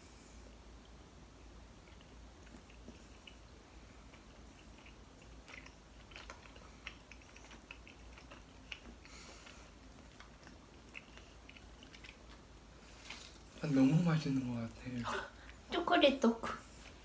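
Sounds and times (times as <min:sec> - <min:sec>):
faint wet chewing clicks: 0:00.8 - 0:13.7.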